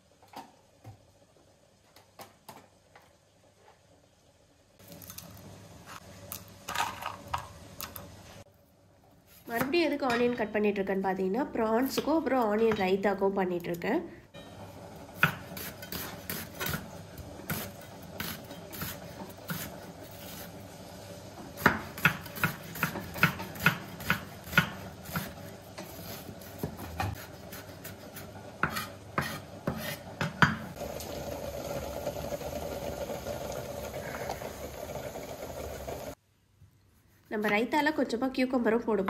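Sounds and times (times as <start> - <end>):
onions sizzling in a pan: 14.4 - 36.2
knife chopping on wooden board: 21.6 - 25.4, 28.6 - 30.6.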